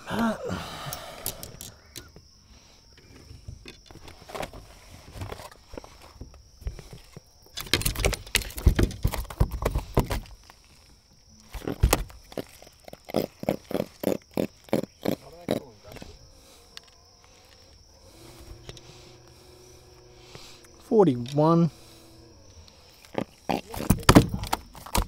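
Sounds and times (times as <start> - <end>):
fish grunting croaks: 12.3 - 24.2.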